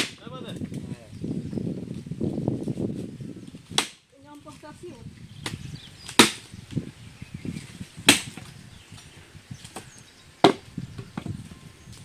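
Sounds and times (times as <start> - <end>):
firewood chopping: 0.0 - 0.3, 3.7 - 4.0, 5.4 - 6.6, 8.0 - 8.6, 9.6 - 11.3
wood knocking and rustling: 7.6 - 12.0.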